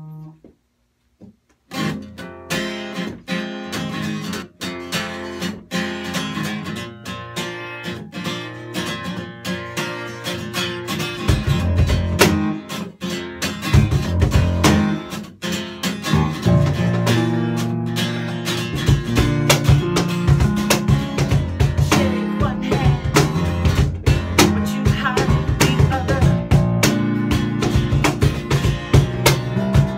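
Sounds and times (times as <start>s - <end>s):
strummed acoustic guitar chords: 1.7s - 29.9s
live band playing: 16.1s - 29.9s.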